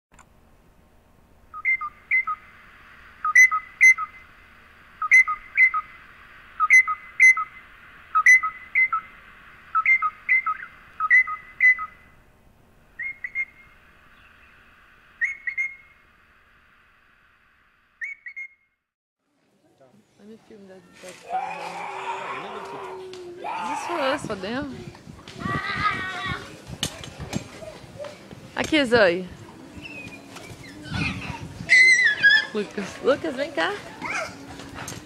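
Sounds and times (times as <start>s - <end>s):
parrots whistling calls: 1.5s - 2.5s, 3.2s - 4.2s, 5.0s - 6.0s, 6.6s - 12.1s, 13.0s - 13.7s, 15.2s - 15.9s, 18.0s - 18.6s, 29.8s - 32.6s.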